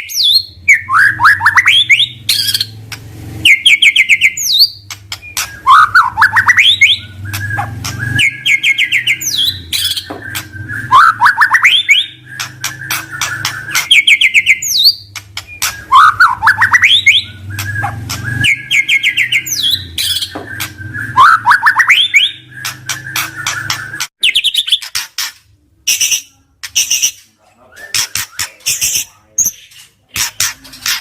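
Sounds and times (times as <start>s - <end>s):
songbird trills and clicking calls: 3.7s - 25.0s.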